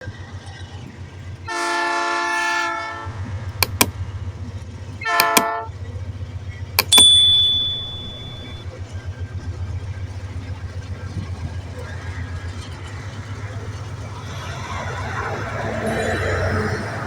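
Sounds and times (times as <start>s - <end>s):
low train rumble: 0.0s - 17.0s
train horn blasts: 1.5s - 3.4s, 5.0s - 5.8s
wheel clacks over rail: 3.6s - 4.0s, 5.1s - 5.6s.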